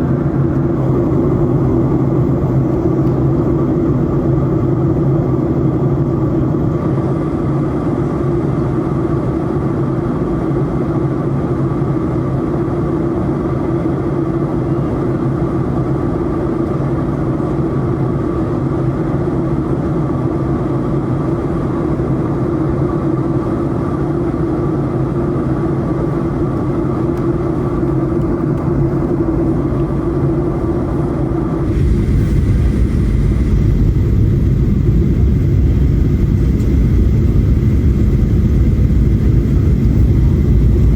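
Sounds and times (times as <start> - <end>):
airplane cabin engine drone: 0.0 - 40.9.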